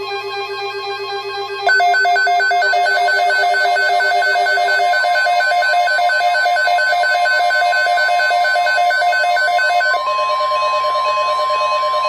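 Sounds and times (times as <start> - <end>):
rapid two-pitch alert beeping: 1.7 - 10.0.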